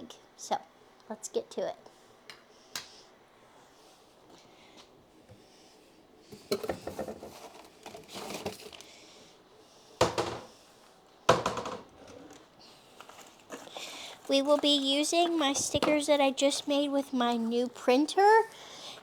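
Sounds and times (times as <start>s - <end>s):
rustling packaging: 6.4s - 9.0s, 12.0s - 19.0s.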